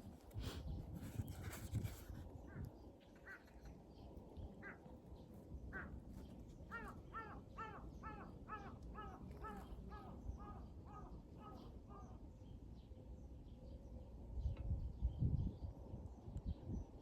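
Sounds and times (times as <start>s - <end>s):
bird harsh calls: 6.7s - 12.2s.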